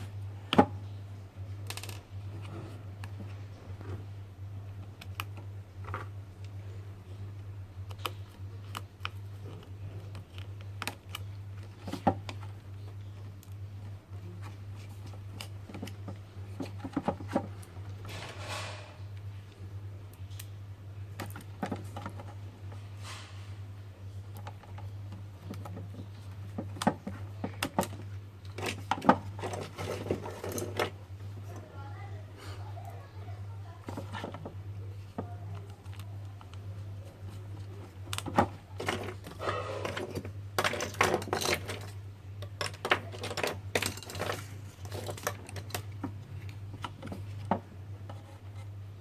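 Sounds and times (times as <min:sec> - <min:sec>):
low electrical hum: 0:00.0 - 0:49.0
scrape: 0:18.1 - 0:19.0, 0:23.0 - 0:23.5
clicks and taps on plastic and metal: 0:24.3 - 0:30.2.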